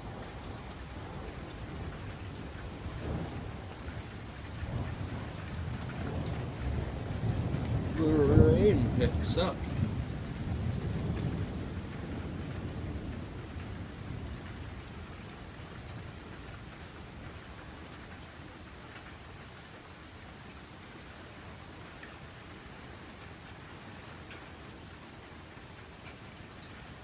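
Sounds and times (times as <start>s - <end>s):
thunder rumbling: 0.0s - 15.8s
heavy rain falling: 0.0s - 27.0s.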